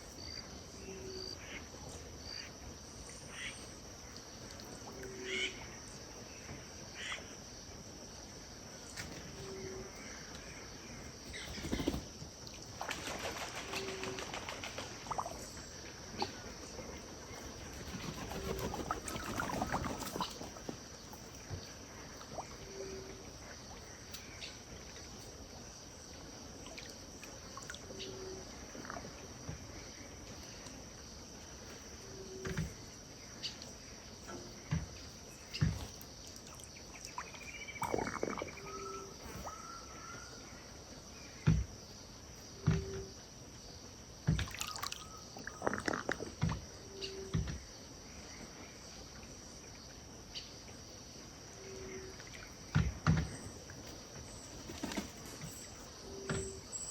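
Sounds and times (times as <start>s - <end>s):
high insect drone: 0.0s - 56.9s
bird calls: 8.9s - 12.2s, 12.9s - 24.6s, 33.4s - 40.5s, 44.5s - 47.6s, 51.6s - 56.9s
small water splashes and knocks: 34.3s - 38.0s, 44.2s - 46.7s, 52.2s - 55.7s.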